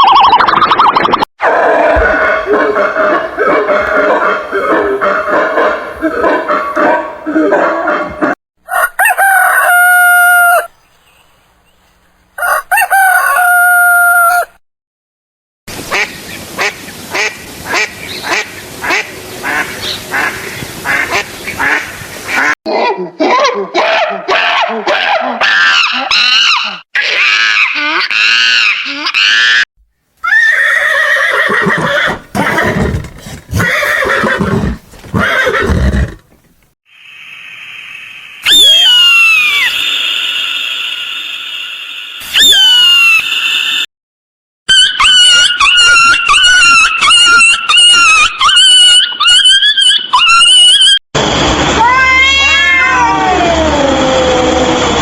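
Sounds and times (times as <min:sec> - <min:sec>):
rooster crowing: 0:08.6 - 0:10.7, 0:12.4 - 0:14.6
horse neighing: 0:30.2 - 0:36.4.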